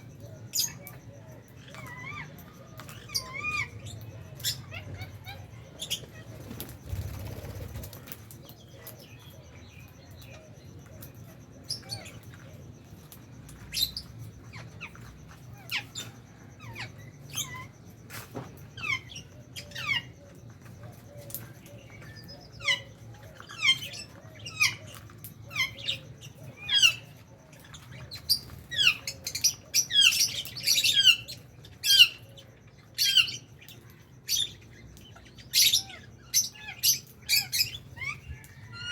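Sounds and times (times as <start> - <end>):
lovebirds chirping: 0.0 - 38.9.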